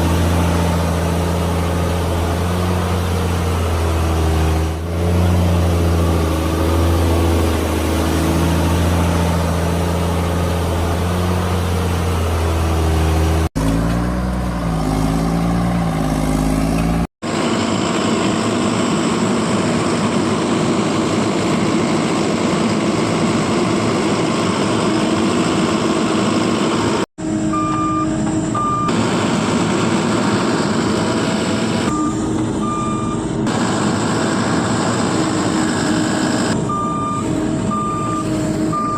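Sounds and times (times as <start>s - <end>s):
heavy vehicle engines running: 0.0s - 38.9s
reversing alarm beeping: 27.5s - 29.0s, 31.9s - 33.3s, 36.4s - 38.9s.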